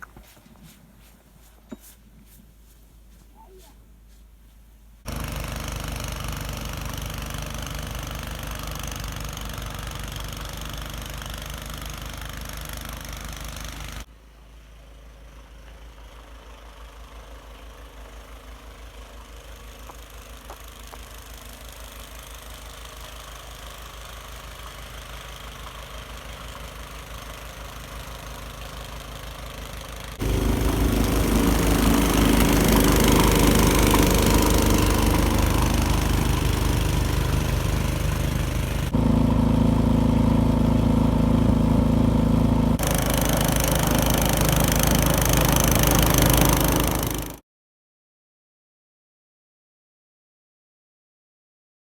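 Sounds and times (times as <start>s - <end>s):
engine running steadily: 5.1s - 14.1s, 17.6s - 47.4s.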